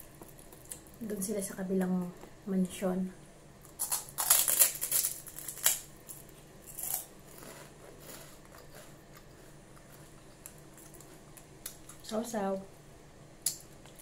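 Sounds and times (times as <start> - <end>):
crunching pork rinds: 3.6 - 12.1.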